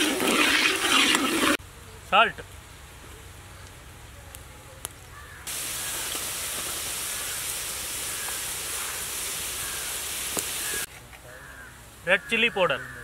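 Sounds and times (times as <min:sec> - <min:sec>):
vegetables sizzling in hot oil: 0:05.5 - 0:10.9.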